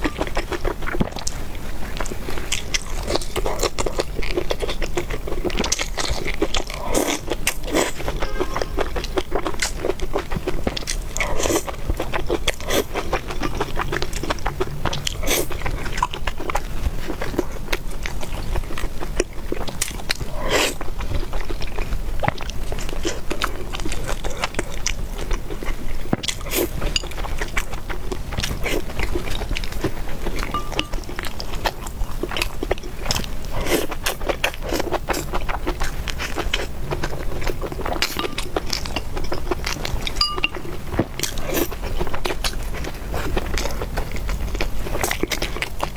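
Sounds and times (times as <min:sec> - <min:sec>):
chewing and biting: 0:00.0 - 0:45.9.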